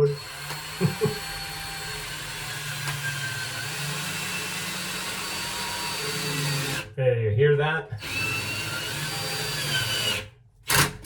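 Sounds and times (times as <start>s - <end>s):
power drill driving screw: 0.0s - 6.9s, 8.0s - 11.0s.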